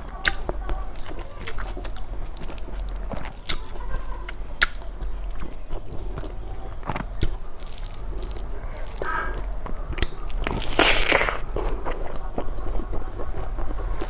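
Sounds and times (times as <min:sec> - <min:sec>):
soft chewing: 0:00.0 - 0:14.0
wet mouth clicks and smacks: 0:04.3 - 0:14.0.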